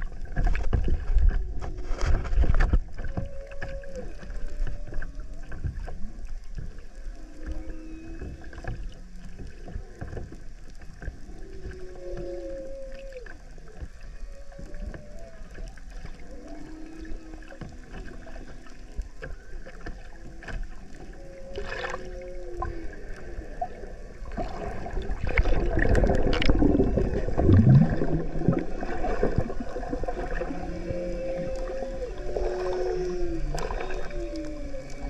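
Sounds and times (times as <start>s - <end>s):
whale song underwater: 0.0s - 35.0s
low falling whale call: 1.2s - 10.2s, 11.2s - 35.0s.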